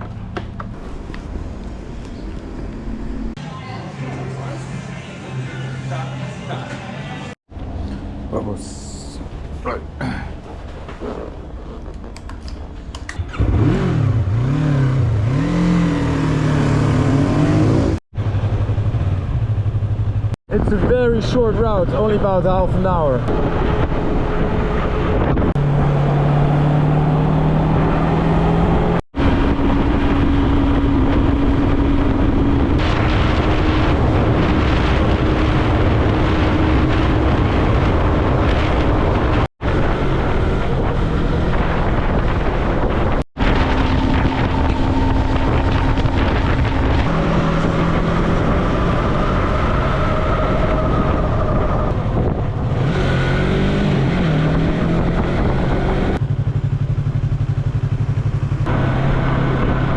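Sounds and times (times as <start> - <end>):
motorcycle engine cruising: 6.5 - 20.4, 23.0 - 59.9
wind rushing over microphone: 16.9 - 56.2, 57.5 - 59.9.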